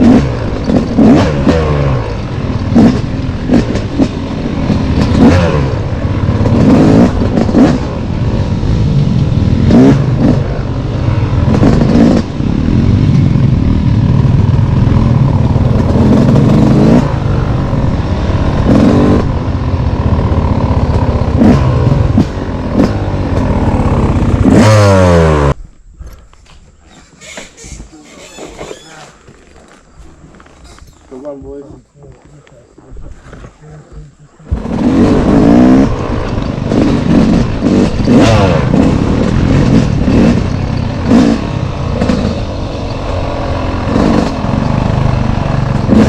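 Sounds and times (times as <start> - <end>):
dirt bike engine revving: 0.0 - 25.6, 34.3 - 46.0.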